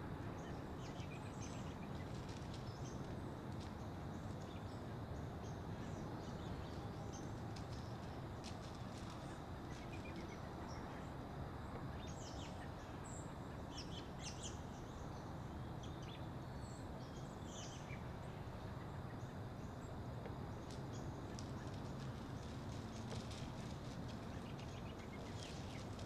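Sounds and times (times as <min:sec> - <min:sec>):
outdoor background hiss: 0:00.0 - 0:26.0
small birds chirping: 0:00.2 - 0:26.0.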